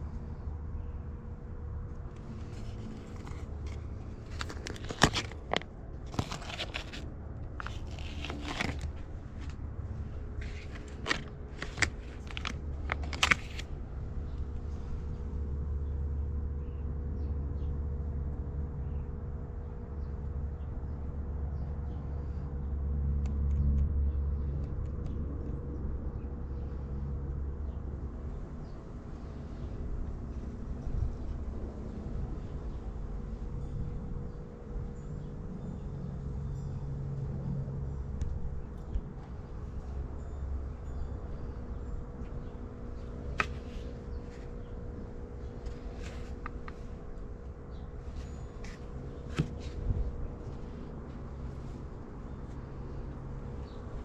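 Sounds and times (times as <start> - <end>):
faint hum: 0.0 - 54.0
steady low rumble: 0.0 - 54.0
crinkling and scraping: 2.1 - 15.3, 41.4 - 53.0.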